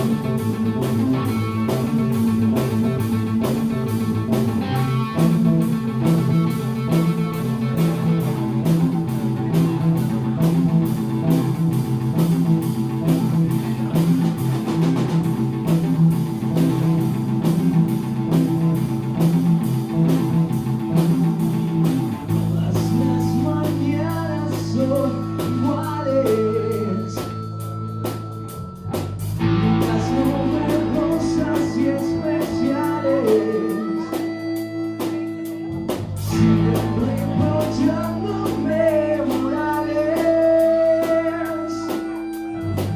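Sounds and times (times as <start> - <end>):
bass guitar: 0.0 - 42.9
drums: 0.0 - 42.9
electric guitar: 0.0 - 42.9.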